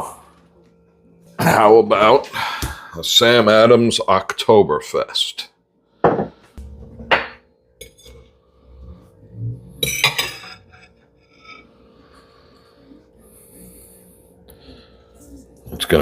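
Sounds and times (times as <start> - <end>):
bottle knocking on counter: 6.0 - 6.3.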